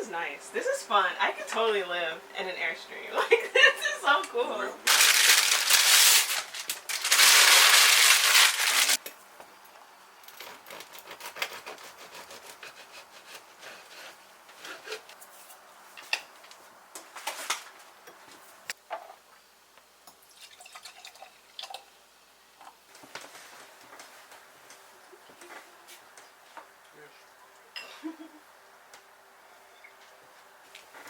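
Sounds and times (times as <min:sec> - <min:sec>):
water dripping: 0:20.1 - 0:21.9.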